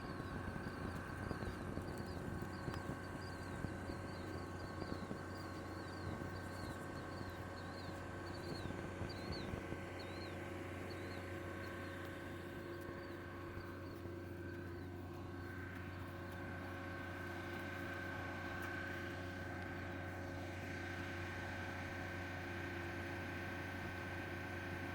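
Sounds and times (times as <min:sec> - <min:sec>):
bird chirps: 0:00.0 - 0:16.4
engine hum with high whine: 0:00.0 - 0:24.9.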